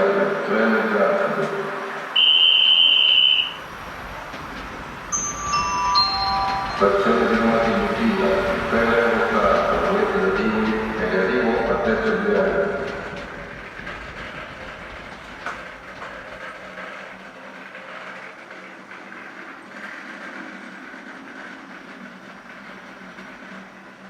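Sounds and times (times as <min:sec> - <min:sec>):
model train wheels rattling: 0:02.2 - 0:23.3.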